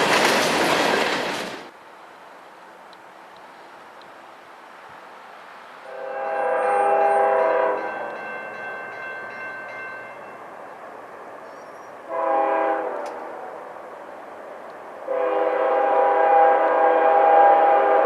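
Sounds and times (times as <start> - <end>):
locomotive air horn blasts: 5.8 - 8.1, 12.1 - 13.6, 15.1 - 18.0.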